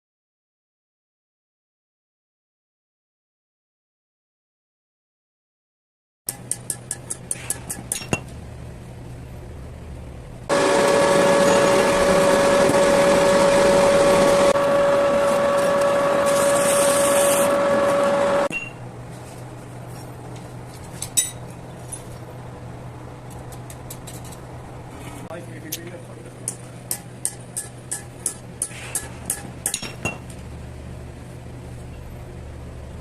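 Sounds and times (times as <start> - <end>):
low hum: 8.0 - 25.2
power tool whining: 10.5 - 18.5.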